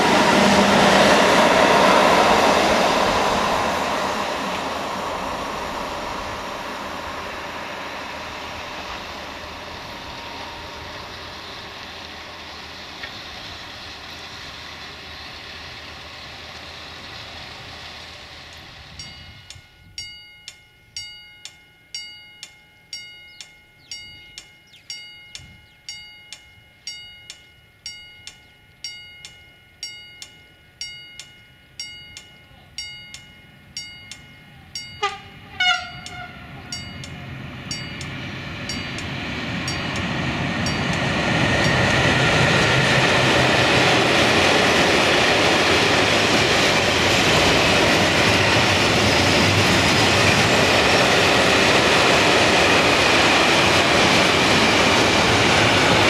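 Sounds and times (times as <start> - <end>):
freight train rolling past: 0.0 - 56.0
warning bell ringing: 8.3 - 12.8, 18.6 - 56.0
locomotive horn blasts: 34.6 - 37.2.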